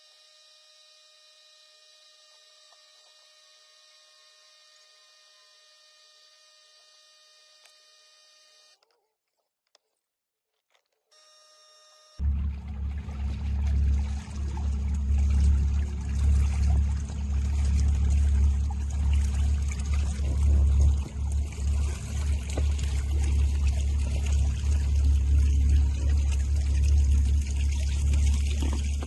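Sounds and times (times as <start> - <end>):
steady low rumble: 12.2 - 29.0
water splashing and trickling: 12.2 - 29.0.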